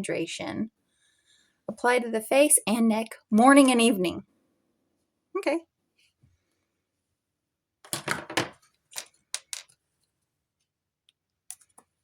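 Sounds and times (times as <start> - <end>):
small objects clattering: 7.9 - 9.8.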